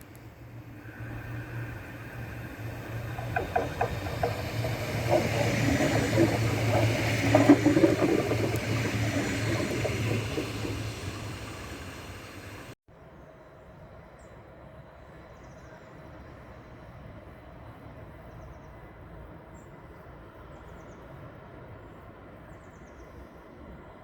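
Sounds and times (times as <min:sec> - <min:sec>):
train passing: 0:00.0 - 0:12.8
wheels clicking on rails: 0:00.0 - 0:12.8.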